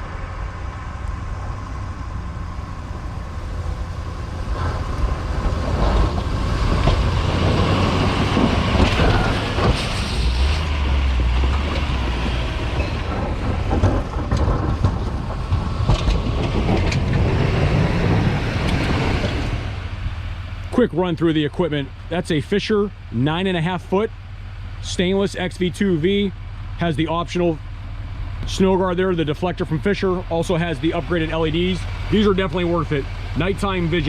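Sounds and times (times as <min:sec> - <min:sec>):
rushing noise: 0:00.0 - 0:20.6
diesel truck engine drone: 0:00.0 - 0:34.0
scattered knocks: 0:11.4 - 0:17.7.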